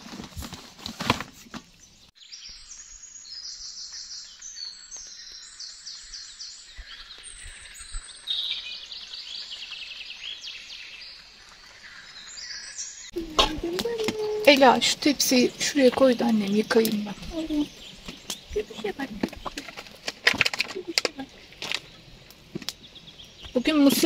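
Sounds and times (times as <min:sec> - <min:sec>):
songbirds singing trilled phrases: 0:01.8 - 0:24.0.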